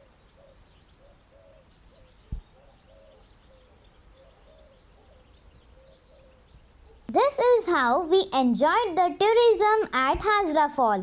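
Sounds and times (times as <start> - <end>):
brief thump: 2.3 - 2.5.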